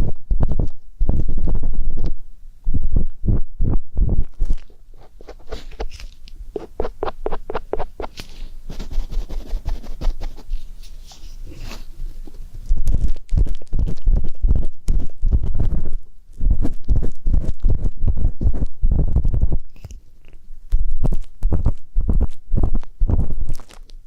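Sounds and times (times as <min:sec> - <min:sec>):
ear pick scraping microphone: 0:03.6 - 0:11.9.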